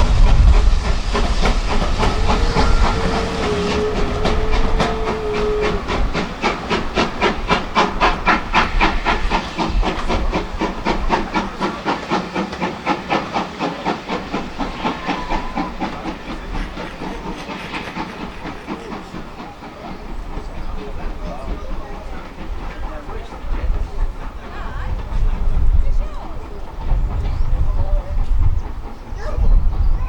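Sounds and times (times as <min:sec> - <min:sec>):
steam hissing: 0:00.0 - 0:30.0
steam locomotive exhaust beats: 0:00.0 - 0:30.0
held tone: 0:01.7 - 0:06.4.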